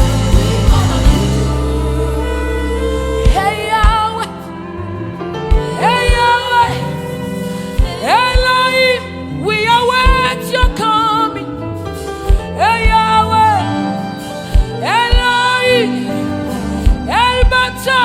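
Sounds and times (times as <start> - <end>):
live worship band music: 0.0 - 18.0
kick drum beat: 3.2 - 4.0, 5.5 - 6.3, 7.8 - 8.6, 10.0 - 10.8, 12.3 - 13.1, 14.6 - 15.4, 16.9 - 17.6.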